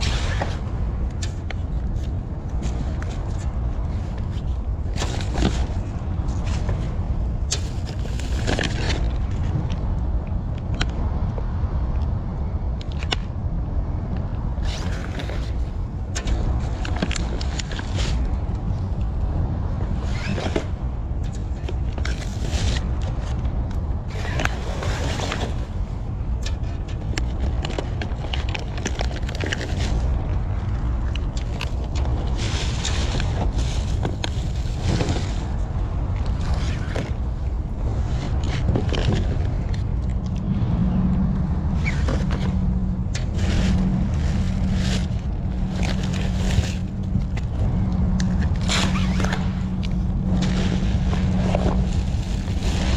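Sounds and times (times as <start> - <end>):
rustling and scraping of bags: 0.0 - 9.4, 26.7 - 40.2, 41.7 - 52.9
low hum: 0.0 - 52.9
steady low rumble: 0.0 - 52.9.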